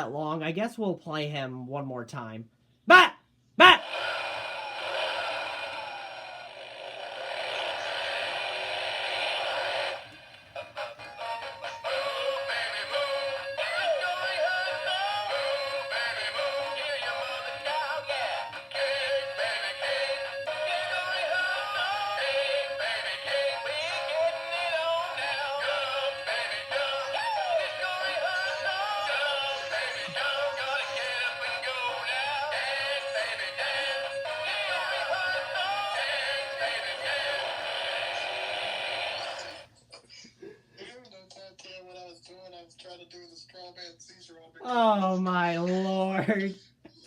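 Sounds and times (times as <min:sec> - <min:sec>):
man singing through small speaker: 0:02.9 - 0:03.9, 0:11.3 - 0:38.3
rushing noise from small speaker: 0:03.6 - 0:10.6, 0:18.8 - 0:39.7.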